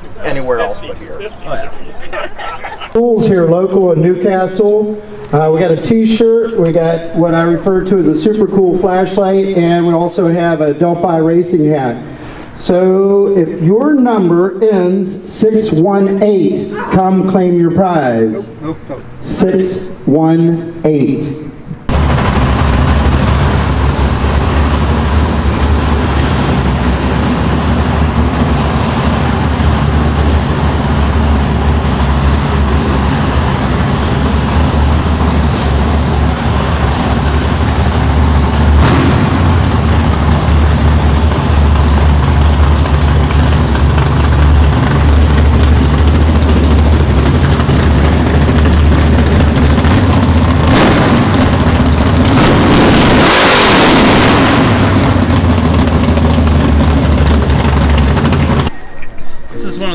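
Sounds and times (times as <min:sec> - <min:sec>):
car engine idling: 0:21.8 - 0:58.8.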